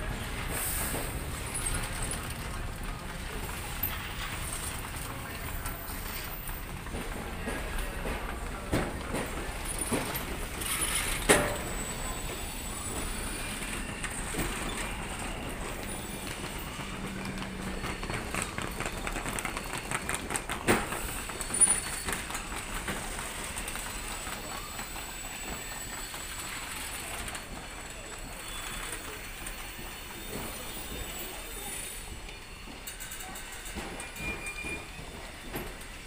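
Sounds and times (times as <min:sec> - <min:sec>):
train coaches rumbling: 0:00.0 - 0:36.0
knocks and clanks: 0:06.1 - 0:11.8, 0:32.7 - 0:36.0.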